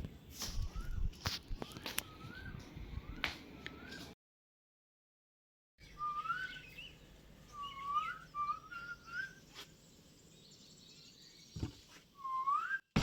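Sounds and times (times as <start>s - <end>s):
bird whistling upward notes: 0.5s - 4.2s, 5.8s - 9.7s, 12.2s - 13.0s
dull thump: 11.6s - 11.9s.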